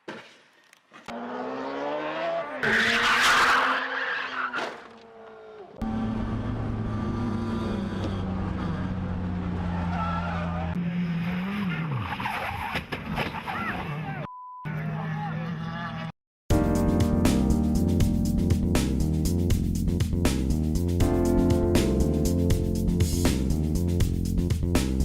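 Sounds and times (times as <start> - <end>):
tyres skidding and squealing: 0.9 - 16.1
car engine revving: 1.1 - 12.4.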